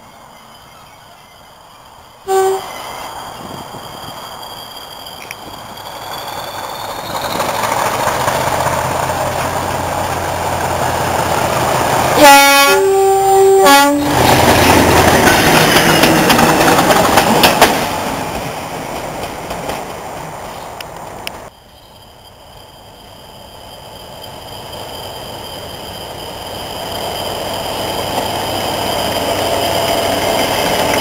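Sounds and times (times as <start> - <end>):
diesel locomotive engine passing: 0.1 - 21.5, 22.2 - 31.0
two-tone locomotive horn: 2.2 - 2.9, 12.1 - 14.3.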